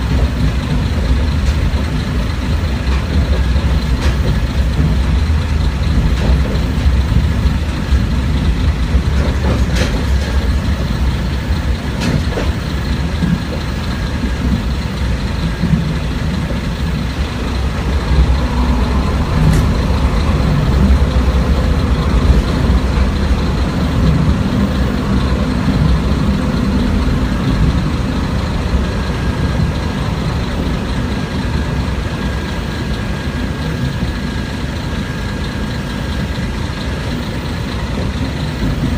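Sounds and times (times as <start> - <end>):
railcar diesel engine rumble: 0.0 - 38.9.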